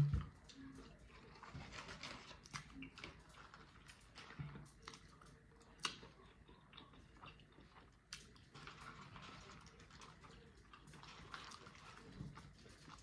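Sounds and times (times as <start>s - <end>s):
person chewing with wet mouth clicks: 2.4s - 8.4s.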